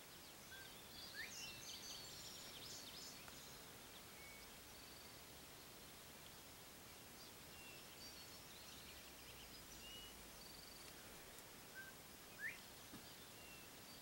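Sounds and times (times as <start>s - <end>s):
steady hiss: 0.0s - 14.0s
faint bird calls: 8.9s - 13.8s.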